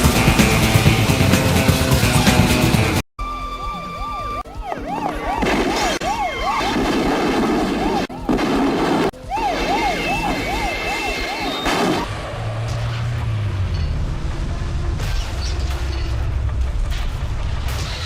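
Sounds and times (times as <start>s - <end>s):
siren yelping: 3.2s - 12.2s.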